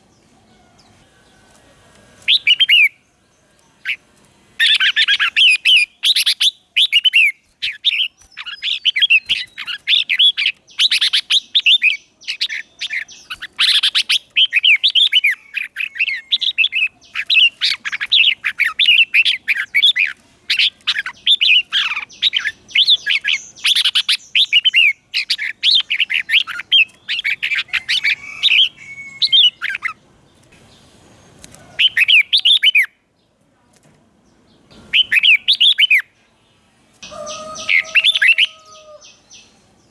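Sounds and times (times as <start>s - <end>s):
bird warbling whistled song: 2.3s - 3.0s, 4.6s - 30.0s, 31.8s - 33.0s, 34.8s - 36.1s, 37.0s - 39.6s.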